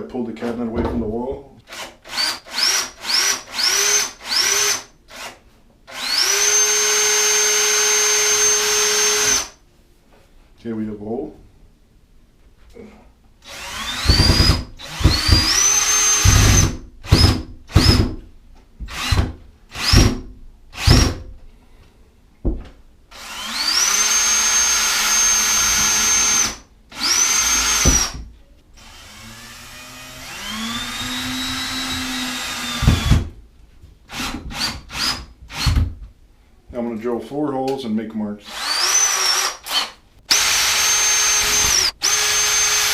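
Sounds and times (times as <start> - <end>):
electric drill whining: 1.7 - 9.6, 13.5 - 18.0, 23.1 - 28.2, 28.8 - 33.2, 38.5 - 42.9.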